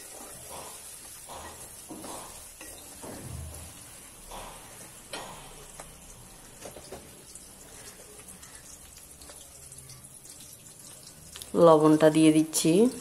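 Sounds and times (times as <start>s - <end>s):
onions frying in oil: 0.0s - 13.0s.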